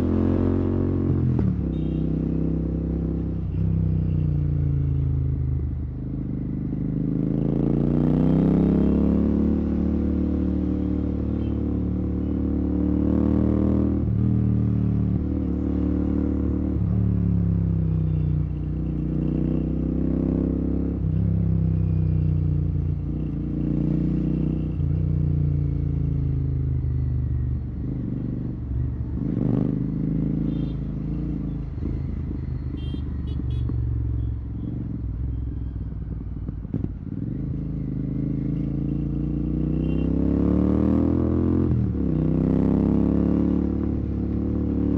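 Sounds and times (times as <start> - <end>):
motorcycle engine accelerating: 36.1 - 44.9.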